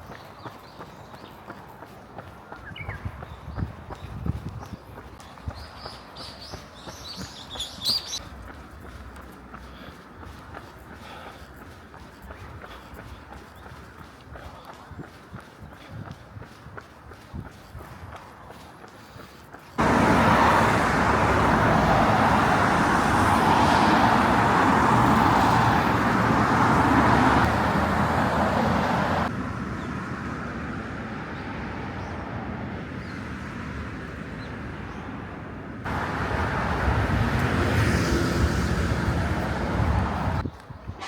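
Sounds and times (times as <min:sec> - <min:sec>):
road noise: 0:00.0 - 0:41.0
wind rushing: 0:35.9 - 0:41.0.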